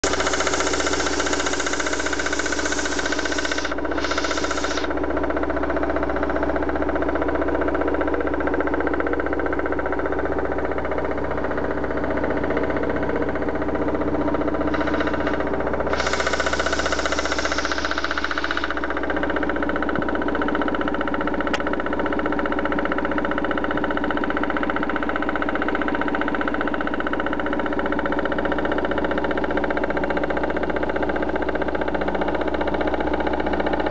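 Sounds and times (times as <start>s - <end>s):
car engine running: 0.0s - 8.8s, 9.7s - 22.6s.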